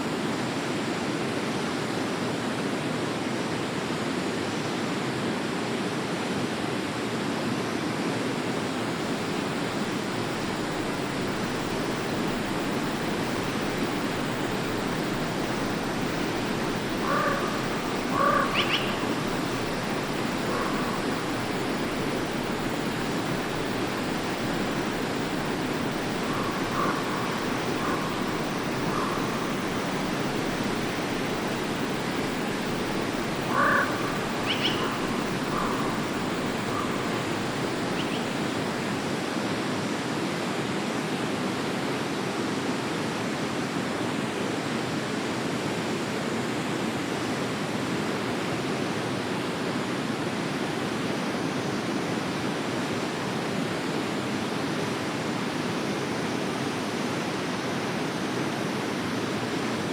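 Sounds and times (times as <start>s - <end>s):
stream flowing: 0.1s - 59.9s
bird calling: 16.9s - 19.5s, 20.3s - 21.1s, 26.2s - 30.0s, 33.4s - 38.6s.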